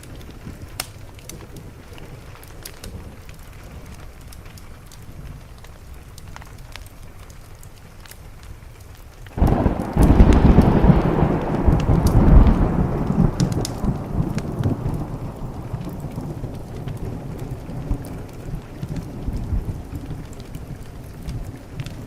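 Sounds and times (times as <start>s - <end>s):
rain on a window: 0.0s - 22.0s
wood fire crackling: 0.0s - 22.0s
thunder rolling: 9.4s - 22.0s.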